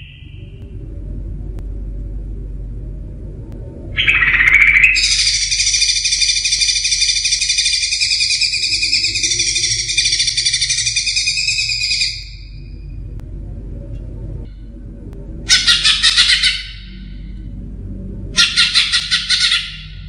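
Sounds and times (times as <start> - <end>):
bird trilling: 0.0 - 0.6, 4.0 - 12.8, 15.5 - 17.4, 18.3 - 20.0
low background rumble: 0.0 - 20.0.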